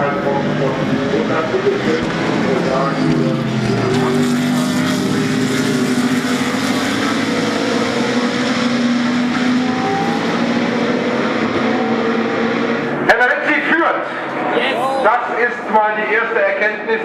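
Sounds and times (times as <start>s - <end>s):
race car engines running hard: 0.0s - 17.0s.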